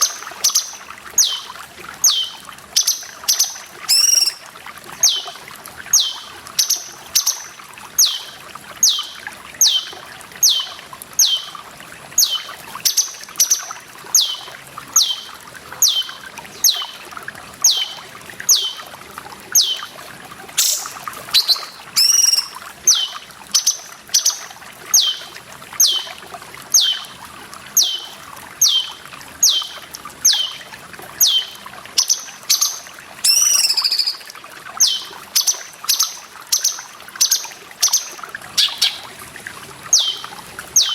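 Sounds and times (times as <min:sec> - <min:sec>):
bird wavering call: 0:00.0 - 0:05.3, 0:06.0 - 0:11.6, 0:12.2 - 0:17.0, 0:17.6 - 0:18.8, 0:19.6 - 0:19.9, 0:20.6 - 0:26.1, 0:26.8 - 0:27.1, 0:27.8 - 0:30.6, 0:31.2 - 0:39.1, 0:39.9 - 0:40.9
running water trickling: 0:00.0 - 0:40.9
bird whistling sharp falling notes: 0:20.6 - 0:22.6.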